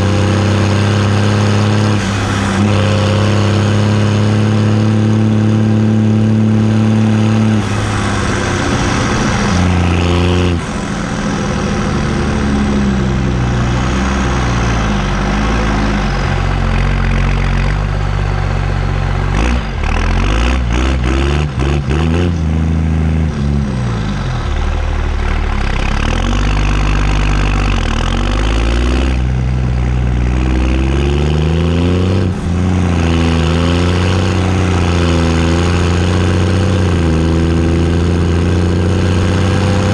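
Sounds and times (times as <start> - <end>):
tractor diesel engine revving: 0.0 - 39.9.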